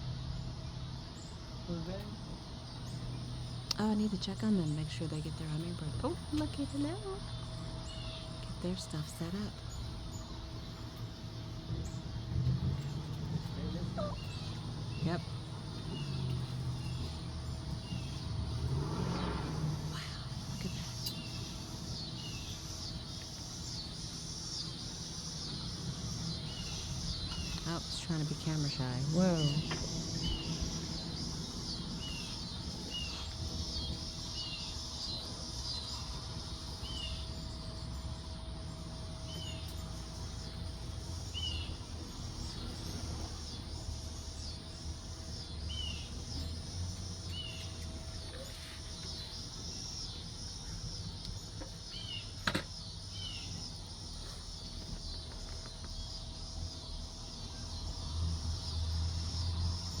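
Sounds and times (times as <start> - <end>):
insects droning: 0.0 - 60.0
hummingbird chip calls: 0.1 - 55.4.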